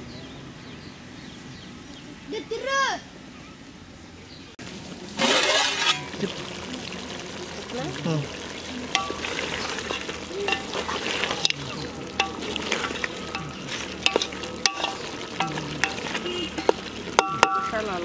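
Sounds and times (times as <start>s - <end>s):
chicken frying in a pot: 4.6s - 18.0s
ladle scraping a metal pot: 5.2s - 6.3s, 8.9s - 17.8s.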